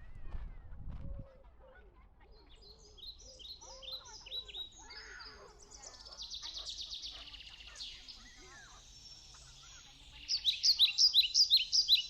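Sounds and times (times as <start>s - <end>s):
small songbird singing: 2.3s - 12.0s.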